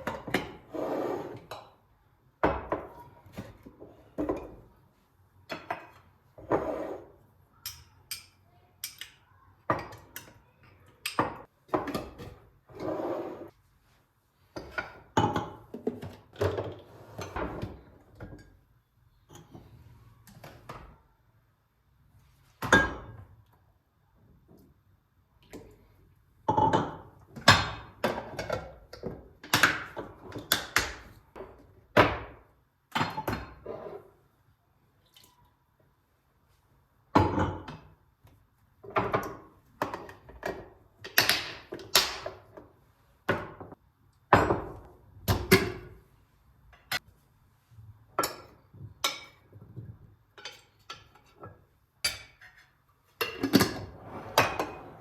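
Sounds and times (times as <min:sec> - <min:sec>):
kitchenware knocking and clinking: 0:00.0 - 0:00.7, 0:02.4 - 0:04.7, 0:05.4 - 0:07.0, 0:07.6 - 0:12.5, 0:14.6 - 0:18.6, 0:22.6 - 0:23.3, 0:26.4 - 0:33.7, 0:37.1 - 0:38.0, 0:38.8 - 0:42.6, 0:43.3 - 0:46.0, 0:48.1 - 0:55.0.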